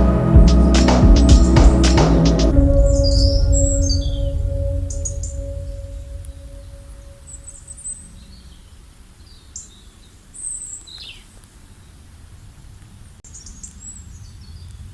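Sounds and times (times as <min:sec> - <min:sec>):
low background rumble: 0:00.0 - 0:08.0.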